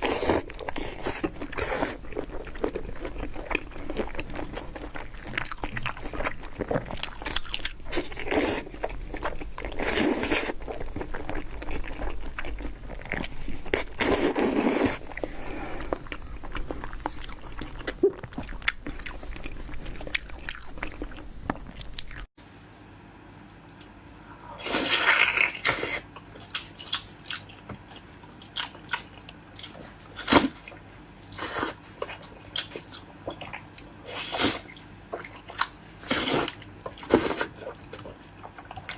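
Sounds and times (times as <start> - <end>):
background hum: 0.0 - 22.3
close chewing and mouth clicks: 0.0 - 22.3, 25.0 - 38.9.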